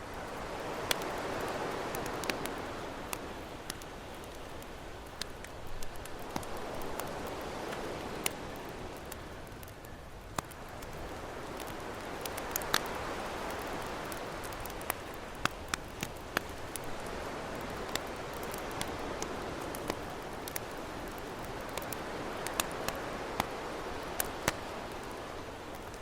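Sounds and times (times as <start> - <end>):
campfire crackling and popping: 0.1 - 26.0
ocean waves: 0.2 - 9.1, 10.8 - 26.0.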